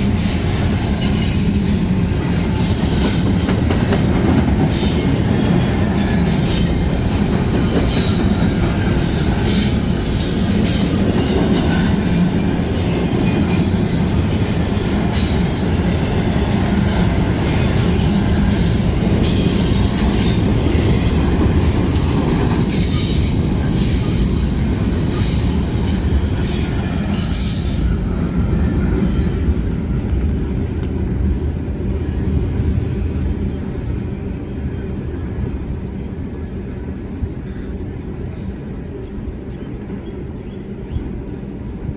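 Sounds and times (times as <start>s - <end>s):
train wheels rumbling on rails: 0.0s - 41.9s
high-pitched wheel squeal: 0.2s - 1.8s, 26.4s - 27.9s.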